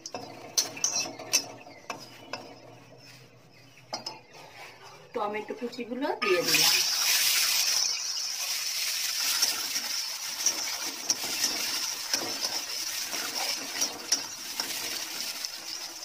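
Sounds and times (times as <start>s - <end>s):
metal spatula scraping pan: 0.0s - 16.0s
tomatoes sizzling in oil: 6.2s - 16.0s.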